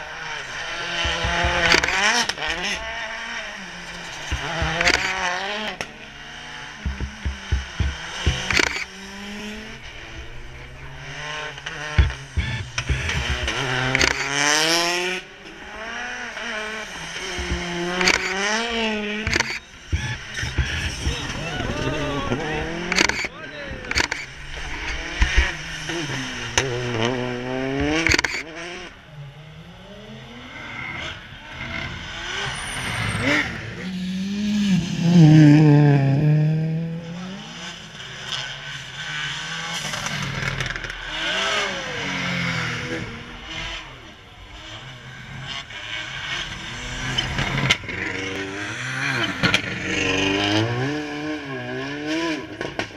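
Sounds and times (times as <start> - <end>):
rally car engine accelerating: 0.0 - 52.9
sharp engine cracks: 6.8 - 15.2, 17.0 - 28.6.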